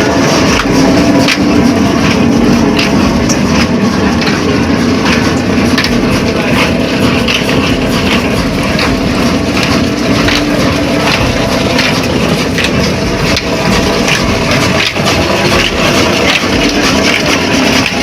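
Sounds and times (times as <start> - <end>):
diesel engine knocking: 0.0 - 18.0.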